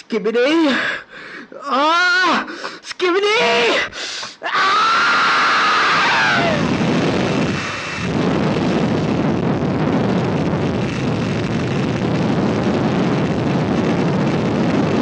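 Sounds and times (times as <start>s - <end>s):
falling wail: 3.4s - 8.0s
loud continuous rumbling: 4.8s - 15.0s.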